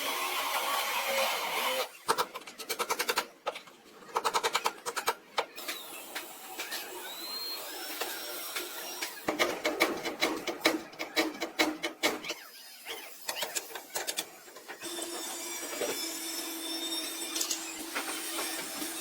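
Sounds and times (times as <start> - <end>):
power tool running: 14.8 - 19.0.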